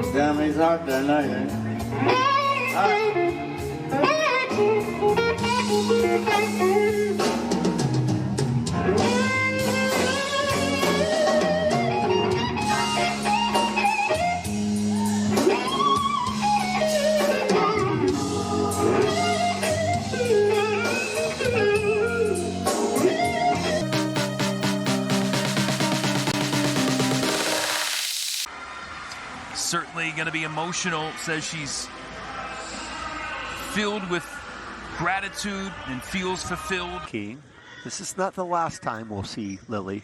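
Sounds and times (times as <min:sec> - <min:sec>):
band with bass and drums: 0:01.5 - 0:28.0
electric slide guitar solo: 0:08.9 - 0:24.5.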